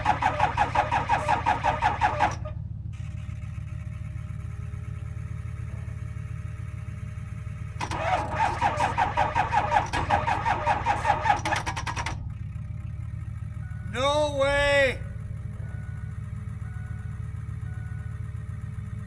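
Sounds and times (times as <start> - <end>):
starter motor cranking engine: 0.0 - 3.2, 7.7 - 15.6.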